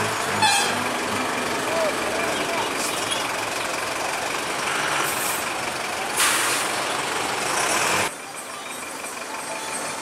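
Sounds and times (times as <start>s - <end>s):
truck engine and road noise: 0.0s - 10.0s
air-brake hiss: 6.2s - 6.8s.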